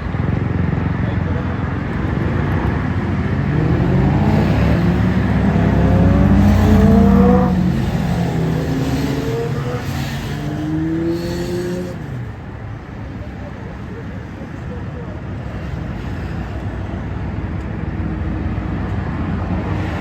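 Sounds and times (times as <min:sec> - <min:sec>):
motorcycle engine accelerating: 0:00.1 - 0:12.3.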